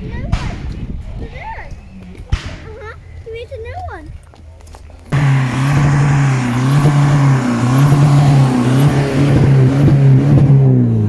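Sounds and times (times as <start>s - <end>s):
car engine revving: 5.1s - 11.0s.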